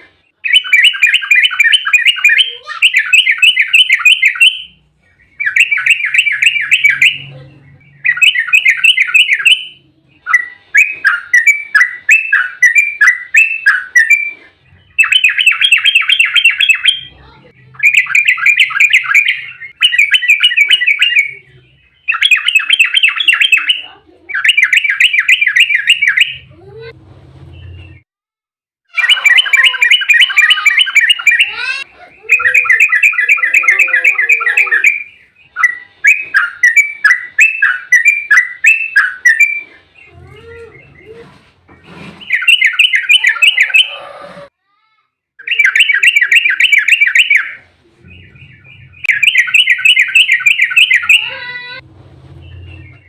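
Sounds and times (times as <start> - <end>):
bird chattering song: 0.3 - 26.5, 28.9 - 41.4, 42.2 - 44.1, 45.4 - 51.8.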